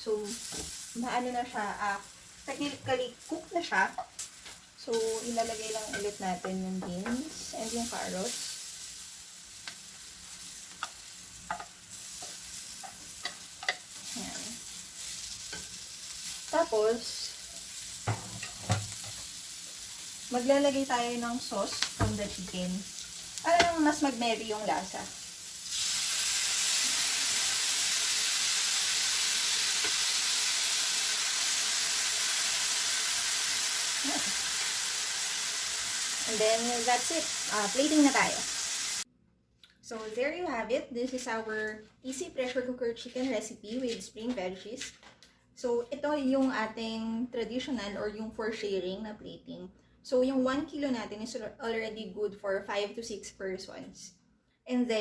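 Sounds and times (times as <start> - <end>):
vegetables sizzling in a pan: 0.0 - 39.1.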